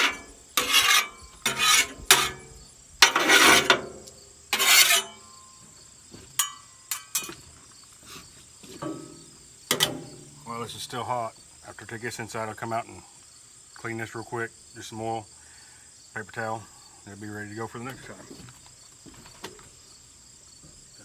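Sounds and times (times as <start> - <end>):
metal spatula scraping griddle: 0.0 - 5.5, 6.4 - 8.2, 8.8 - 10.5
crickets chirping: 0.0 - 21.0.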